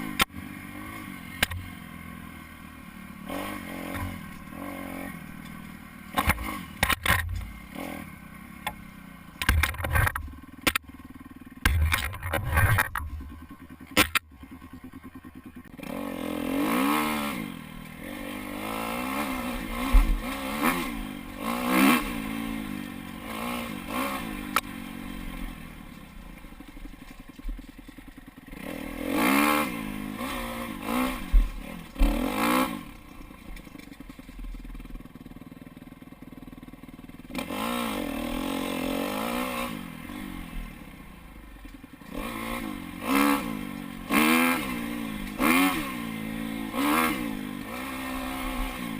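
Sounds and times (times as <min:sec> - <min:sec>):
dirt bike engine revving: 0:00.0 - 0:26.7, 0:28.0 - 0:33.5, 0:37.2 - 0:41.0, 0:41.9 - 0:48.9
bike rattling over rough ground: 0:03.4 - 0:07.9, 0:08.6 - 0:17.1, 0:17.8 - 0:36.7.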